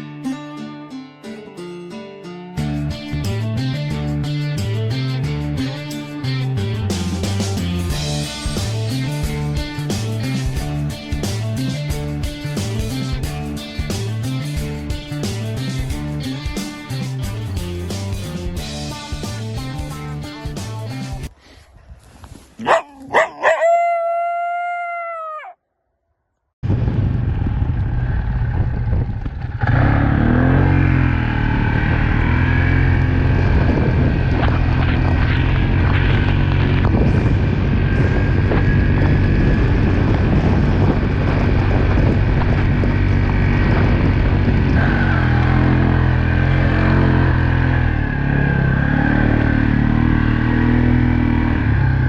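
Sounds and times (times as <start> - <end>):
howl: 22.8 - 25.6
road noise: 26.6 - 52.0
vehicle engine running: 26.6 - 52.0.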